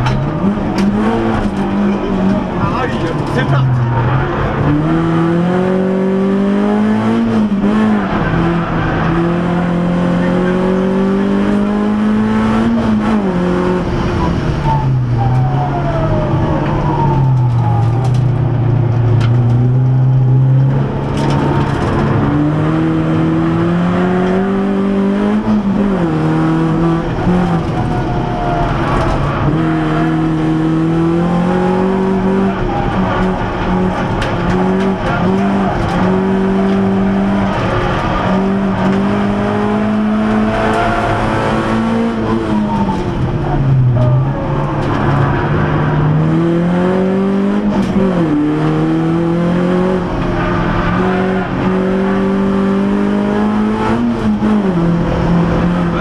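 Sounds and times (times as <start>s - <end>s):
car engine accelerating through gears: 0.0s - 56.0s.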